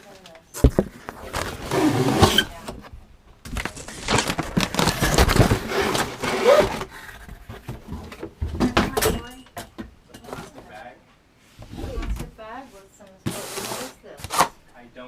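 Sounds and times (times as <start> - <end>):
packaging crinkling and rustling: 0.1 - 2.7, 3.4 - 8.1.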